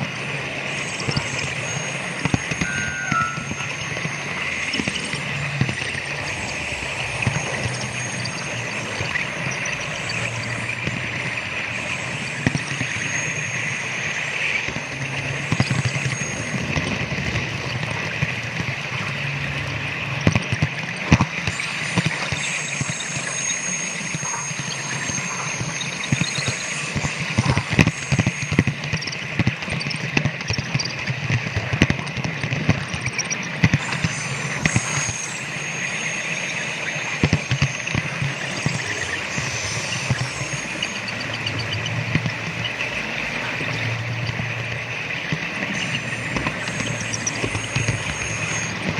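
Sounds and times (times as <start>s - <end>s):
train sound from small speaker: 2.5s - 4.0s.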